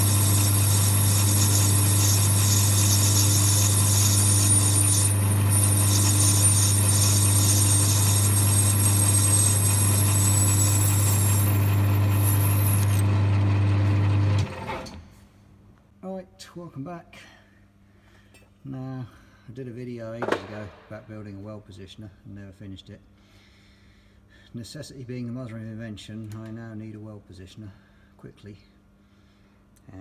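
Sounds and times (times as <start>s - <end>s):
machine hum: 0.0s - 14.8s.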